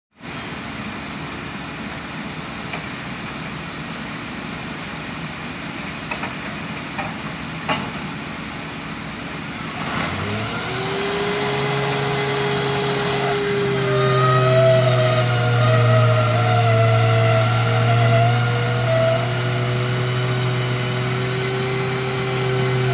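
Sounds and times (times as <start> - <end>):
engine running and revving: 9.5 - 22.9.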